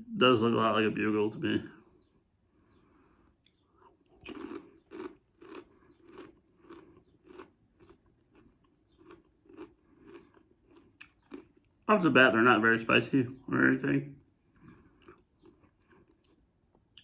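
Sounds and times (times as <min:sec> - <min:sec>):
corn chips being chewed: 0:03.4 - 0:11.9, 0:14.5 - 0:17.0.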